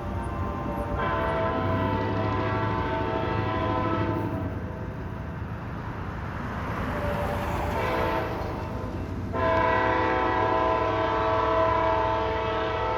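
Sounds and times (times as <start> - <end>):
locomotive air horn blast: 0.0 - 4.5, 9.3 - 12.9
passenger train rumbling past: 0.0 - 12.9.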